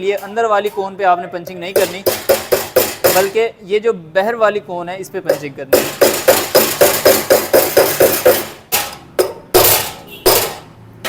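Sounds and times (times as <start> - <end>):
hammer striking metal punch: 1.7 - 3.4, 5.3 - 10.8.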